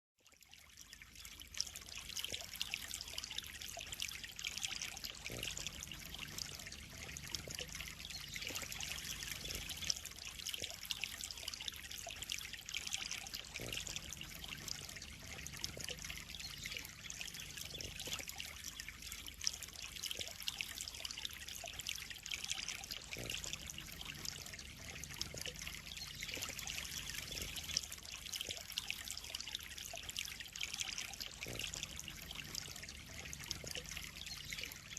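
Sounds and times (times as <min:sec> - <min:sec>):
water trickling into a pond: 0:00.1 - 0:34.9
small water drips: 0:00.2 - 0:34.9.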